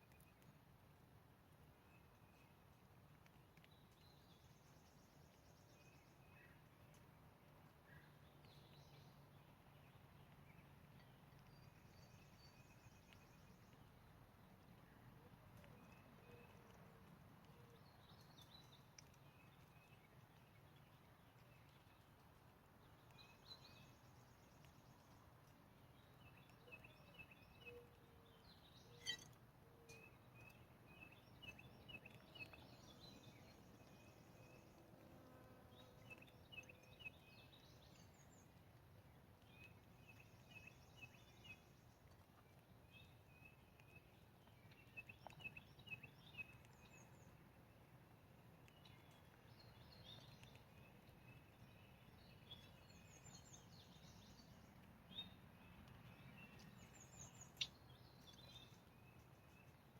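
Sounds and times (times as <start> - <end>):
songbirds chirping and singing: 22.8 - 47.4, 48.6 - 59.9.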